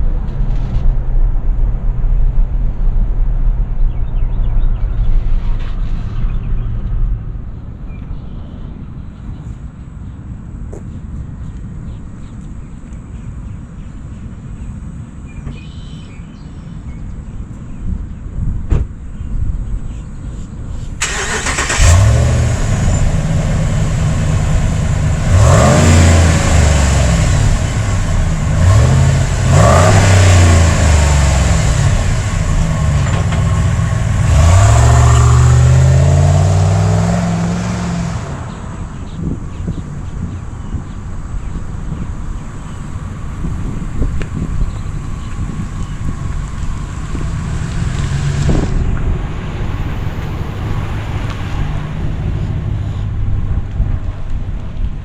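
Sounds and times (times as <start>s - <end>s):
engine starting and revving: 21.0s - 38.6s.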